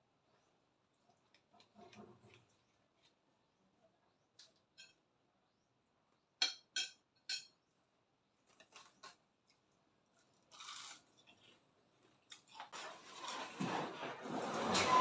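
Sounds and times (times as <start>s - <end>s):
cutlery clinking against plate: 4.8s - 5.0s, 6.4s - 7.6s.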